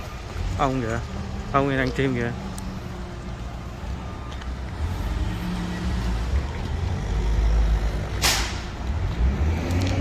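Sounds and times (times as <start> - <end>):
vehicle engine and road rumble: 0.0 - 10.0.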